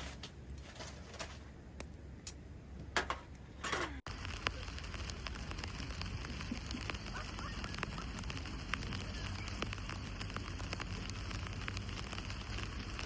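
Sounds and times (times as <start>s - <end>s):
dense sharp crackles: 4.1s - 13.0s
rain pattering: 4.1s - 13.0s.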